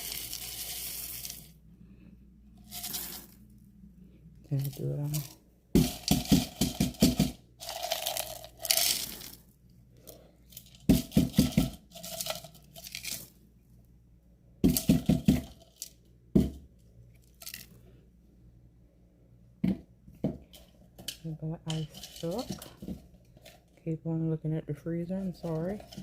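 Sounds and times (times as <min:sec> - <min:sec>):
ice knocking and rattling: 0:04.5 - 0:09.4, 0:10.0 - 0:13.3, 0:14.6 - 0:16.6, 0:19.6 - 0:23.6, 0:25.4 - 0:26.0.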